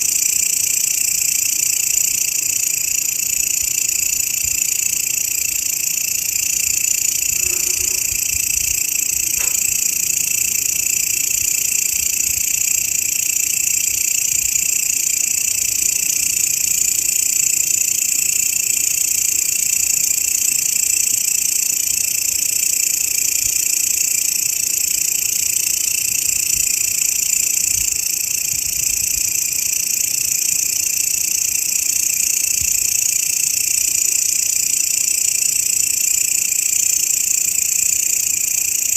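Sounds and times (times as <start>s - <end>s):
grasshopper buzzing: 5.6s - 12.8s.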